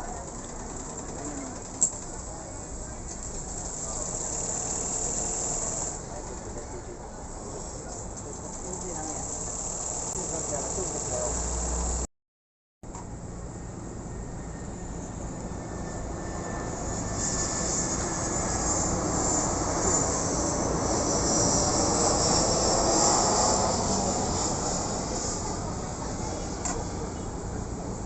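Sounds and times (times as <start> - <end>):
airplane flying past: 14.0 - 27.9.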